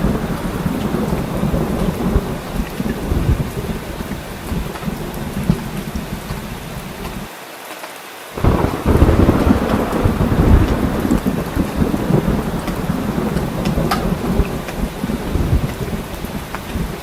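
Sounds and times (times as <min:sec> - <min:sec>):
rolling thunder: 0:00.0 - 0:07.3, 0:08.4 - 0:17.0
heavy rain falling: 0:00.0 - 0:17.0.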